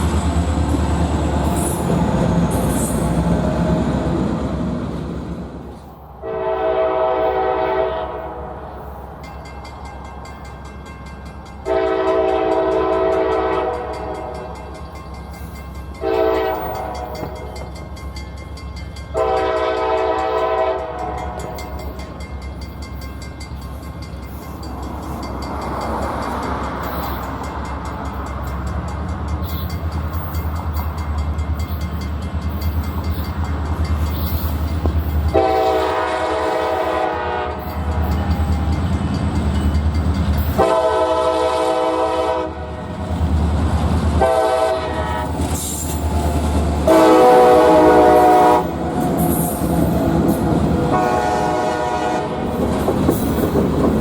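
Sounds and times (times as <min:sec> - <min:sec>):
train rumbling: 0:00.0 - 0:54.0
locomotive air horn blasts: 0:06.2 - 0:08.6, 0:11.6 - 0:14.5, 0:16.0 - 0:17.6, 0:19.1 - 0:21.6, 0:35.3 - 0:38.4, 0:40.5 - 0:42.8, 0:44.1 - 0:45.5, 0:46.8 - 0:49.5, 0:50.8 - 0:52.6.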